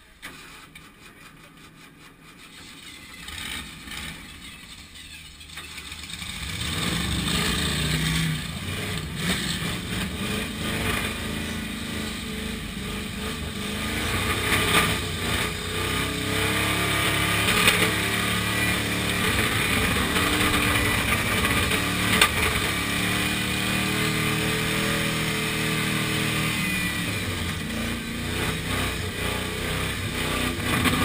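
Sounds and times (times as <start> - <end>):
car engine cranking: 2.4 - 11.3, 17.2 - 22.8
car engine revving unevenly: 5.9 - 31.0.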